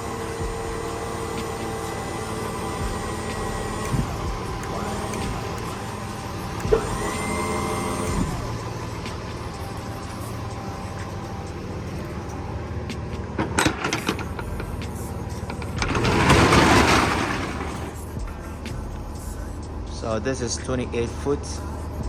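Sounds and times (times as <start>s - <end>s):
steady low hum: 0.0s - 16.4s
hydraulic pump motor whining: 0.0s - 22.0s
rattling burst: 13.4s - 18.7s.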